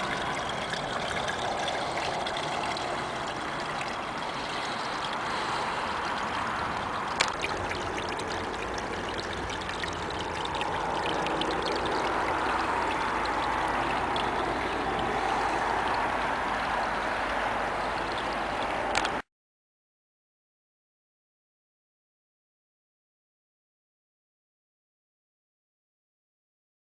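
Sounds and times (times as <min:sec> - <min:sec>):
small waterfall splashing: 0:00.0 - 0:19.2.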